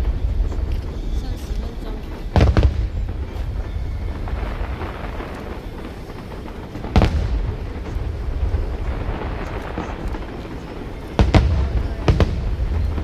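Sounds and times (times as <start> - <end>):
low rumble of firework bursts: 0.0 - 13.0.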